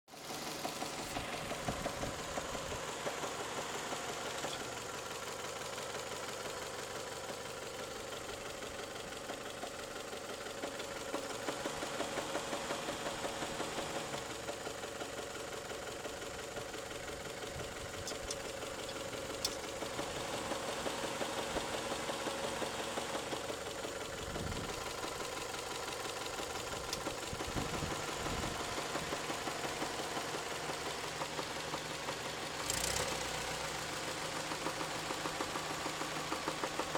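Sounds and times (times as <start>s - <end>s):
engine running: 0.1s - 36.9s
rapid rhythmic engine knock: 0.2s - 36.9s.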